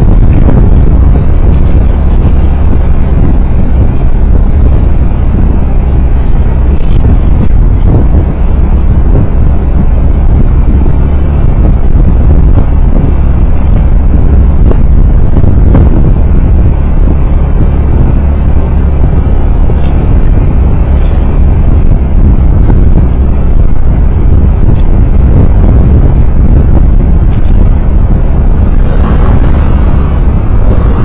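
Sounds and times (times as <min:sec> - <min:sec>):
road vehicle engine rumble: 0:00.0 - 0:31.0
tyre and wind noise: 0:00.0 - 0:31.0.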